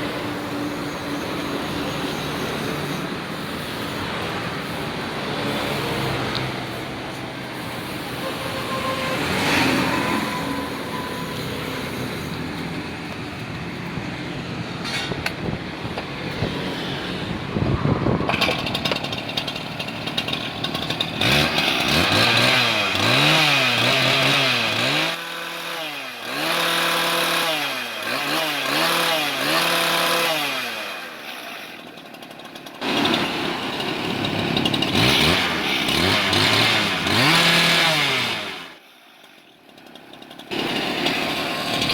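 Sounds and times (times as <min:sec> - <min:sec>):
cut-off saw engine revving: 0:00.0 - 0:13.0, 0:18.3 - 0:39.1, 0:39.8 - 0:41.9
traffic noise: 0:00.0 - 0:41.9.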